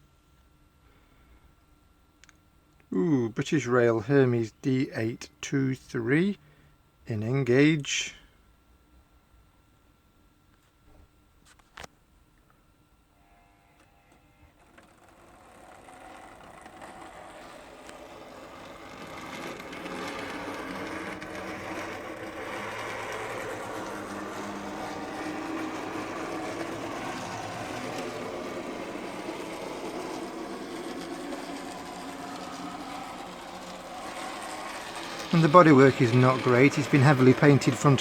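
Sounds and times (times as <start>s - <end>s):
model train motor whirring: 13.2s - 38.0s.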